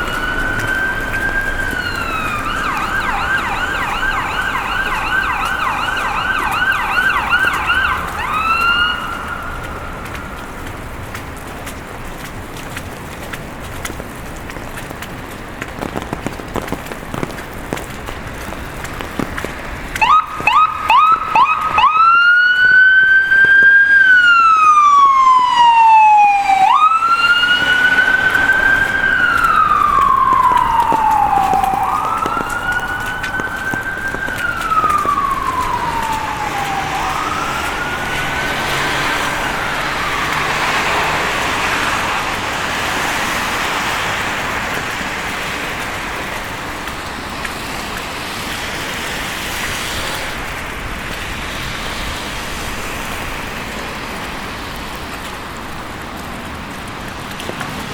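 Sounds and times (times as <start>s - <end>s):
emergency siren wailing: 0.0s - 11.6s, 18.8s - 51.3s
street noise hiss: 0.0s - 57.9s.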